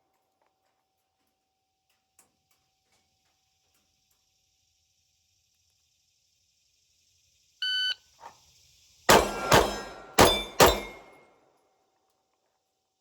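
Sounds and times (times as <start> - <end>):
shot timer beep: 7.6 - 8.0
pistol shots: 9.1 - 11.2.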